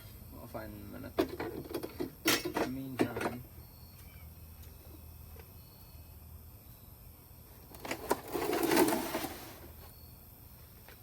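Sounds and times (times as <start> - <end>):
rustling and clattering of parts: 1.2 - 3.4, 7.7 - 9.6.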